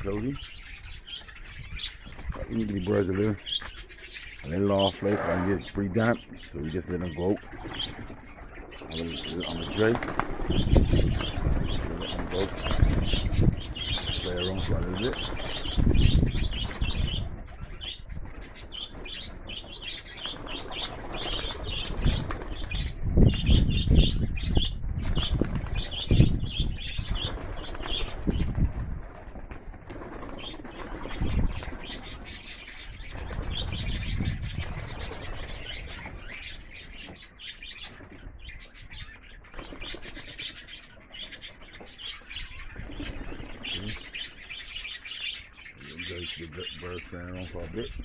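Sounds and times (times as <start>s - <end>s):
birds chirping: 0.0s - 48.0s
pigeon wings flapping: 7.6s - 17.0s, 18.9s - 23.0s, 25.1s - 26.1s, 27.1s - 32.4s, 39.5s - 40.4s, 42.8s - 44.1s.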